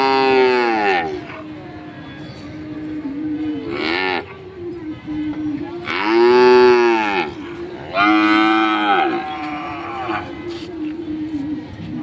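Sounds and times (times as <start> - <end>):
cows mooing: 0.0 - 1.5, 3.7 - 4.4, 5.8 - 10.4.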